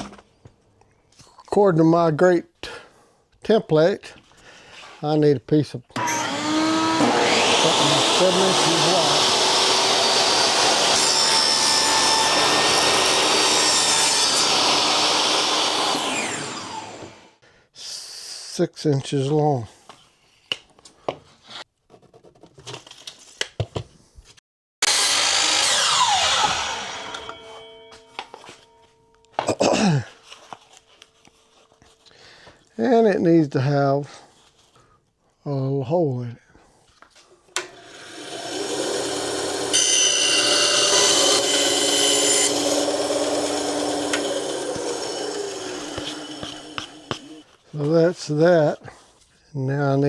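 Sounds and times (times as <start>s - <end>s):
power tool motor running: 6.0s - 17.3s, 24.8s - 28.2s, 37.6s - 47.4s.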